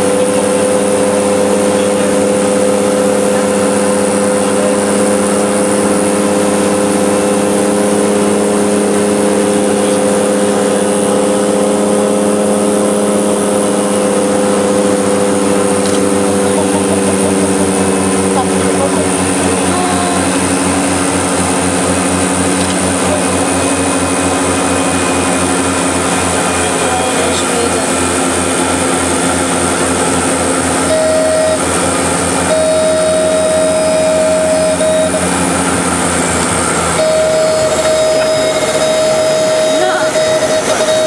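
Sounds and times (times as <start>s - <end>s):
high engine whine: 0.0s - 41.0s
propeller engines droning: 0.0s - 41.0s
steady single tone: 30.7s - 41.0s.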